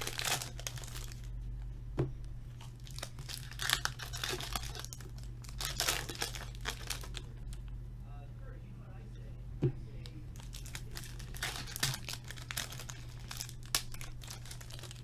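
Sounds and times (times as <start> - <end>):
wrappers torn and crinkled: 0.0 - 1.3, 2.6 - 7.6, 10.3 - 15.0
low electrical hum: 0.0 - 15.0.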